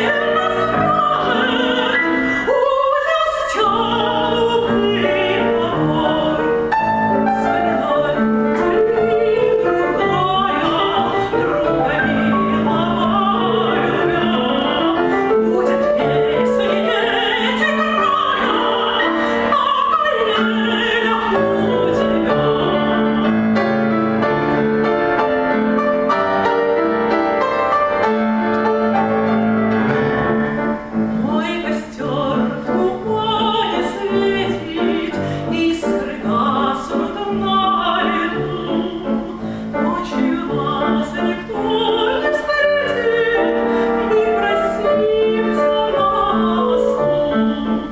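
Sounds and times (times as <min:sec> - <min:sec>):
woman singing operatically: 0:00.0 - 0:24.0, 0:31.1 - 0:47.9
piano accompaniment: 0:00.0 - 0:47.9.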